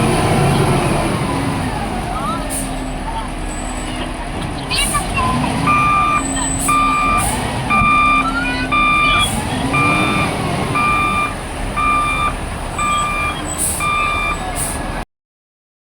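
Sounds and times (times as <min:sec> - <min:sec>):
diesel engine rumble: 0:00.0 - 0:15.0
reversing alarm beeping: 0:05.3 - 0:14.5.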